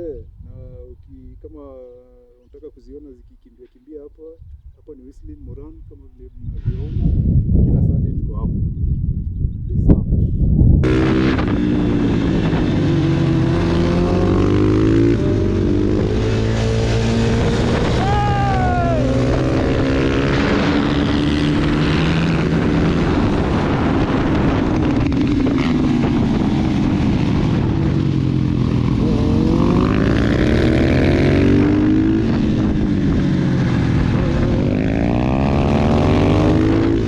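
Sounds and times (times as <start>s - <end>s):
motorcycle engines revving: 10.8s - 37.0s.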